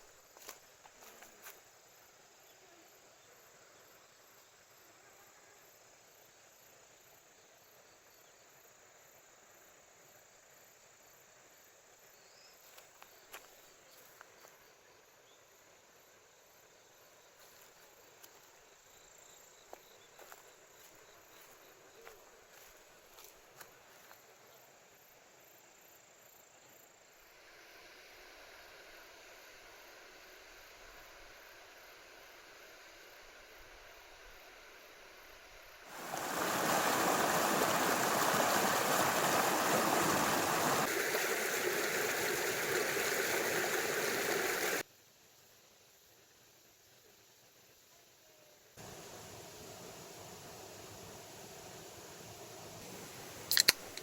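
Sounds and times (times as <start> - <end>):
soft outdoor hiss: 0.0 - 54.0
small clicks and ticks: 53.5 - 54.0.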